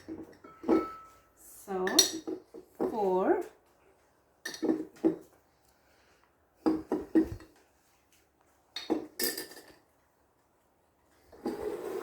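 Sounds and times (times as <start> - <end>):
utensils knocking against a bowl: 0.0 - 1.2.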